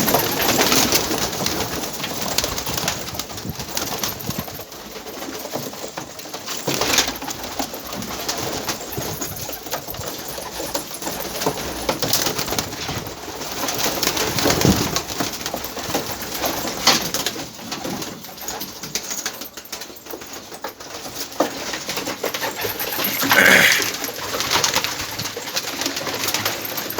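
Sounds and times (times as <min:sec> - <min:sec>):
small clicks and rustles: 0:00.0 - 0:26.9
pigeons cooing: 0:22.2 - 0:25.3.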